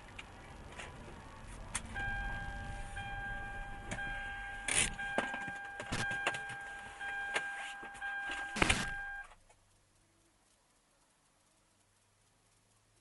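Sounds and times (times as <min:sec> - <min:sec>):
steady high tone: 0:00.9 - 0:09.3.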